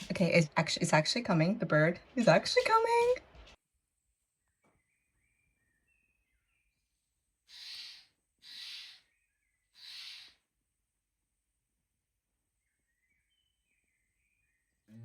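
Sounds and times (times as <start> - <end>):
jay harsh raspy calls: 7.5 - 9.1, 9.7 - 10.4
small birds thin chirps: 7.5 - 10.4.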